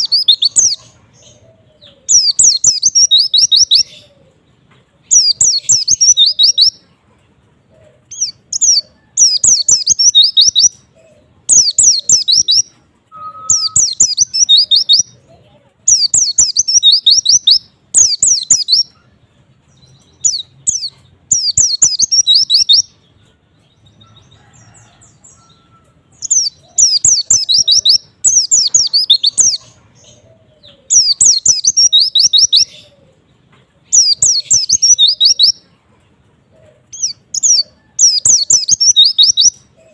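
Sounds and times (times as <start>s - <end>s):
bird twittering: 0.0s - 4.2s, 5.1s - 6.8s, 8.1s - 10.8s, 11.5s - 15.2s, 15.9s - 19.0s, 20.1s - 22.9s, 25.3s - 33.0s, 33.9s - 35.6s, 36.9s - 39.6s.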